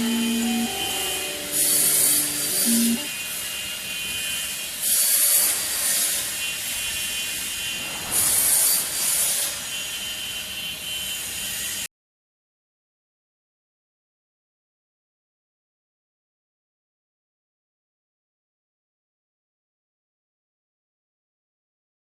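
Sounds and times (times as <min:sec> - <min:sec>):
saw cutting through wood: 0:03.2 - 0:11.8.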